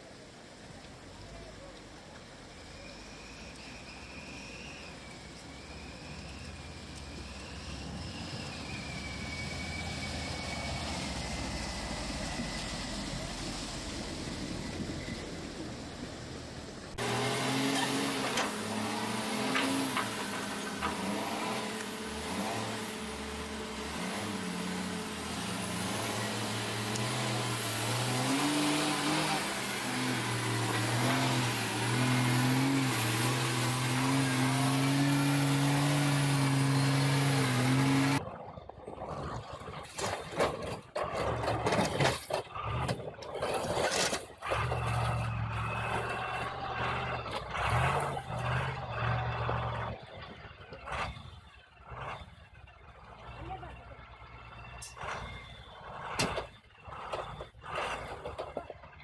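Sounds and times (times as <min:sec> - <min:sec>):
choppy engine with knocks: 0:04.8 - 0:59.0
heavy machine engine revving: 0:16.9 - 0:38.2, 0:40.6 - 0:59.0.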